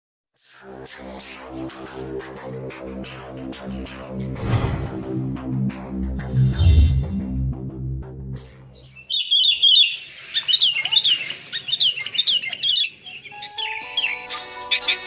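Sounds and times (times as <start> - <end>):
music with low bass line: 0.7 - 8.7
birds chirping and twittering: 8.6 - 15.0.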